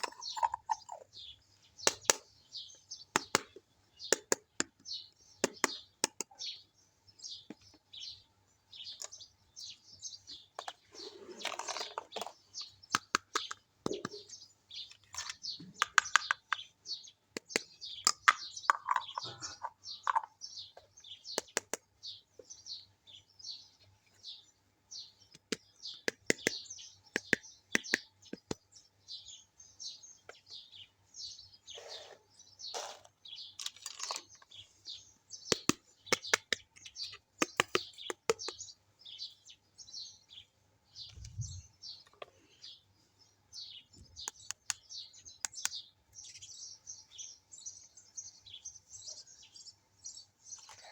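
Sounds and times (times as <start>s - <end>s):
birds chirping: 0.0s - 50.9s
plastic toy pieces clicking: 33.6s - 34.4s, 35.5s - 36.6s.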